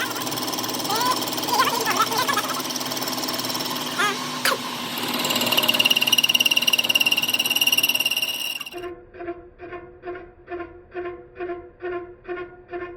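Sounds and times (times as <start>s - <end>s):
workshop machine fluttering rattle: 0.0s - 8.9s.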